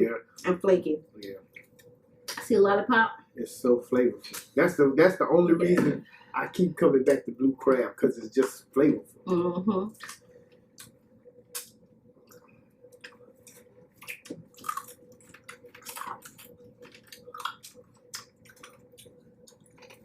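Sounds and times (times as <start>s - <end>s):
faint steady hum: 0.0s - 20.0s
wet chewing and squishes: 10.8s - 20.0s.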